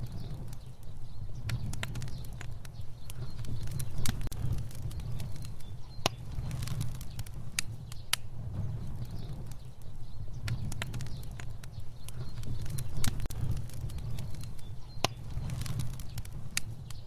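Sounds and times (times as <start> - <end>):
fire burning rumble: 0.0 - 17.0
fire crackling and popping: 0.0 - 17.0.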